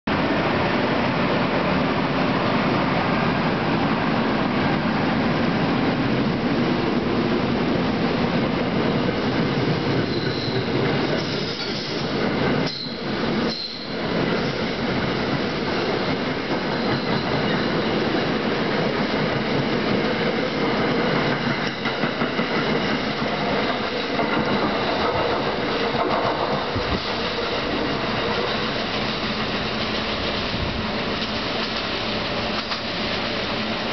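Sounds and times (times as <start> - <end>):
train wheels rumbling on rails: 0.1 - 33.9
high wheel squeal: 10.0 - 14.7.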